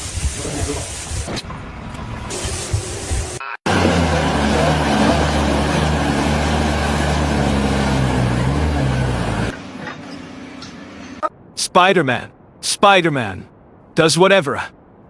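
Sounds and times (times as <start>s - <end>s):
engine running loudly: 3.7s - 10.0s.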